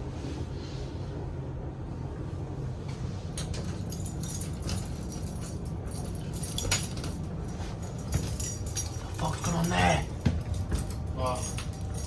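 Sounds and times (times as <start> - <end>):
steady low hum: 0.0 - 12.0
keys jangling in a lock: 3.4 - 12.0.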